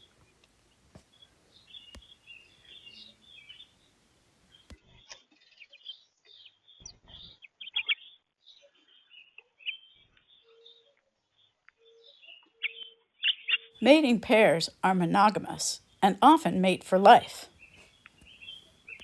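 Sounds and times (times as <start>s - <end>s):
small birds chirping: 1.1s - 4.8s, 17.6s - 19.0s.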